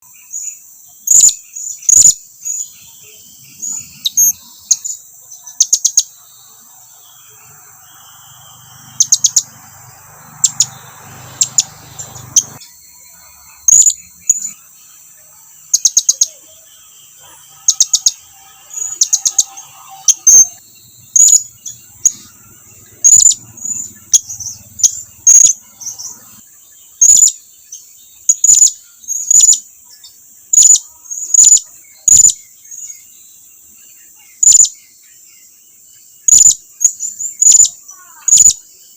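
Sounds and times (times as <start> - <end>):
parrot high-pitched calls: 21.2 - 26.4.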